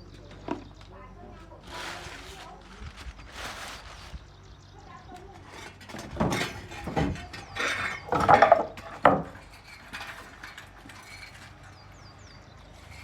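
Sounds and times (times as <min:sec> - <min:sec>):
metal tools clanking: 0:05.4 - 0:12.1.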